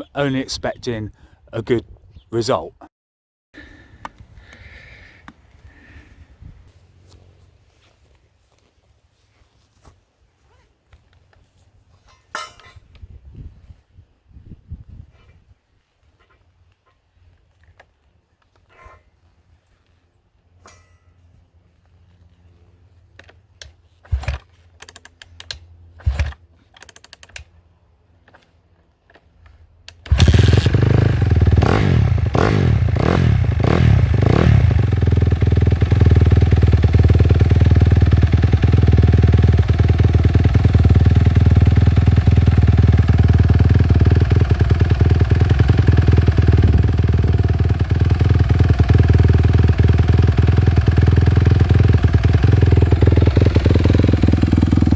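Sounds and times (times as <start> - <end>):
motorcycle engine revving: 30.1 - 54.9.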